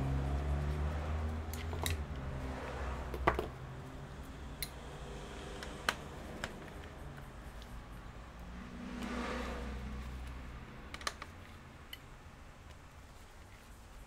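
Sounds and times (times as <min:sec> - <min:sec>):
clicks of handled plastic parts: 0:05.6 - 0:07.8, 0:10.9 - 0:12.8.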